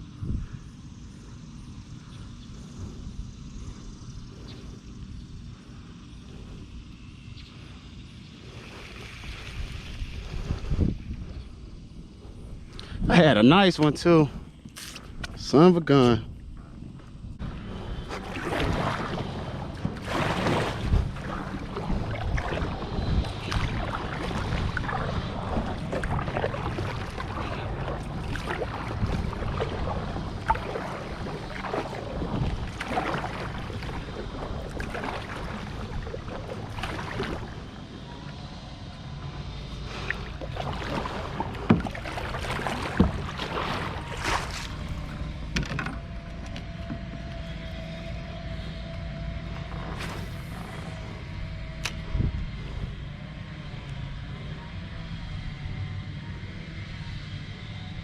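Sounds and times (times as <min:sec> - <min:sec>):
faint steady hum: 0:00.0 - 0:58.0
water wash: 0:17.5 - 0:51.9
paddle splashes: 0:17.9 - 0:38.4, 0:39.7 - 0:46.1
paddle knocking against hull: 0:40.6 - 0:44.7.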